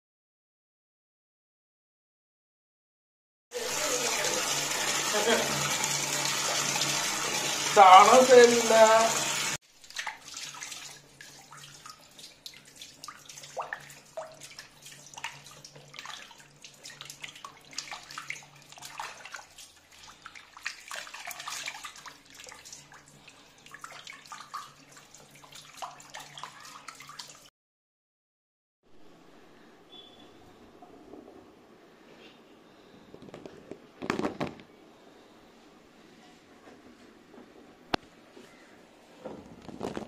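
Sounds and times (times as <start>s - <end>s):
water sloshing in metal bowl: 5.1s - 27.5s.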